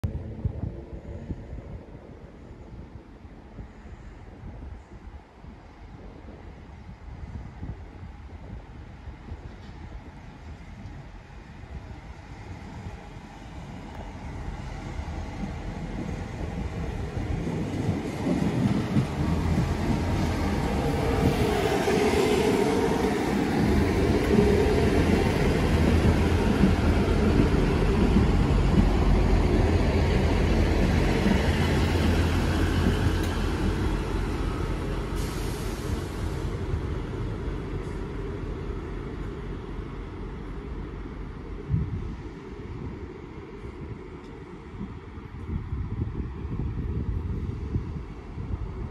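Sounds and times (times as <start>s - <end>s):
diesel train engine rumble: 0.0s - 48.9s
train wheel noise: 12.7s - 45.5s.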